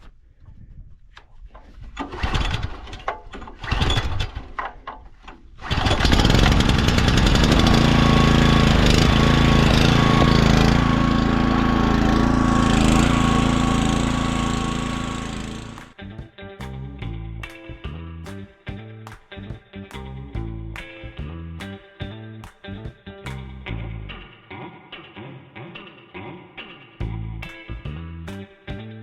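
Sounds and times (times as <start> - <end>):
small gasoline engine running: 2.1 - 3.0, 3.6 - 4.4, 5.6 - 16.0.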